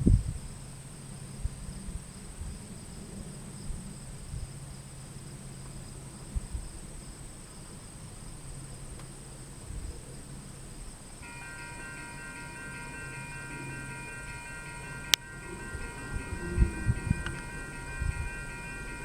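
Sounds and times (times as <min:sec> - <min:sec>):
insects trilling: 0:10.2 - 0:19.0.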